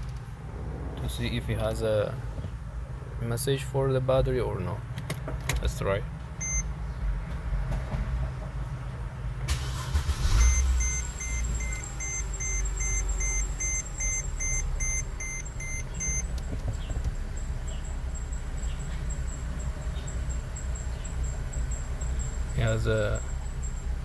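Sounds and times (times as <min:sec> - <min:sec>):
car engine cranking and idling: 0:00.0 - 0:24.0
rapid electronic car chime: 0:10.2 - 0:16.3.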